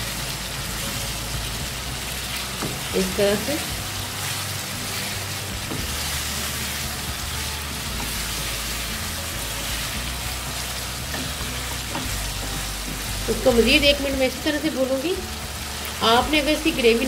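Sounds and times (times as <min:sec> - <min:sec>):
chicken sizzling in oil: 0:00.0 - 0:17.0
wooden spatula stirring in wok: 0:00.4 - 0:14.3.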